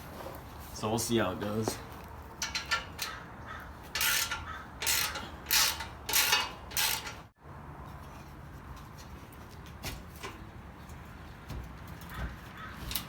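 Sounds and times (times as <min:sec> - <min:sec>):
hand ratchet clicking: 0:03.9 - 0:07.2.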